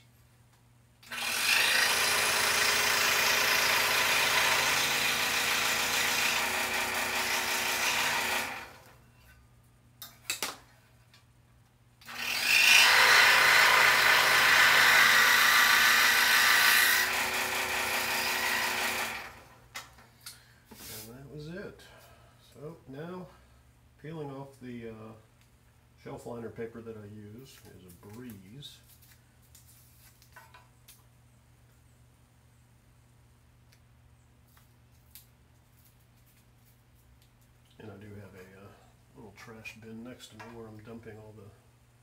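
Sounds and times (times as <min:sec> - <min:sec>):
scroll saw cutting wood: 0:01.0 - 0:09.0, 0:12.0 - 0:19.6.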